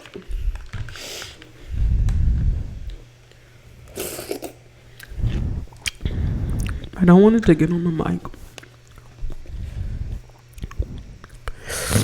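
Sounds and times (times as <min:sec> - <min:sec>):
chewing and slurping: 0:08.6 - 0:12.0.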